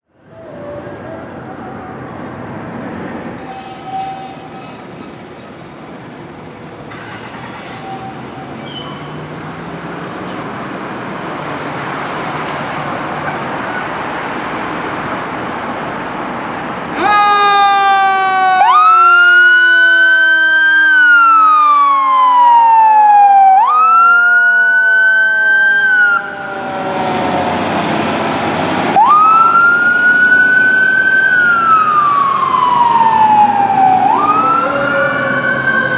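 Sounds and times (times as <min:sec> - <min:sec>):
approaching vehicle rumble: 0:00.2 - 0:16.9, 0:21.9 - 0:35.9
siren wails: 0:16.9 - 0:35.9
second siren tone winding down: 0:17.0 - 0:35.9.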